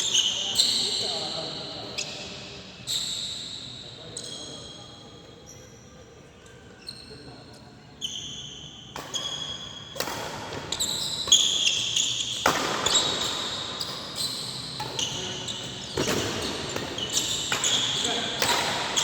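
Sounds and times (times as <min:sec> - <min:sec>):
shoes squeaking on court: 0:00.0 - 0:04.8, 0:06.8 - 0:19.0
racket striking shuttlecock: 0:10.0 - 0:11.6, 0:12.3 - 0:13.4, 0:16.0 - 0:19.0.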